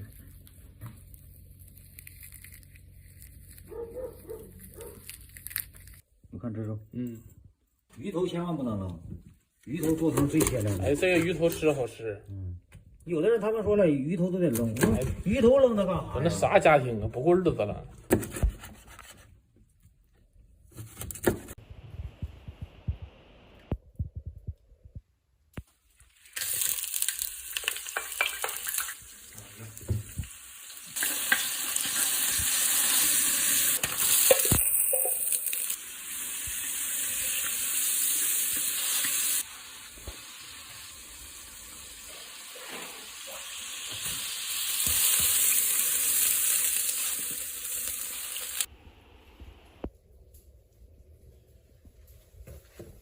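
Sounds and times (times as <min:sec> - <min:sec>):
fish sizzling in oil: 0:26.1 - 0:48.7.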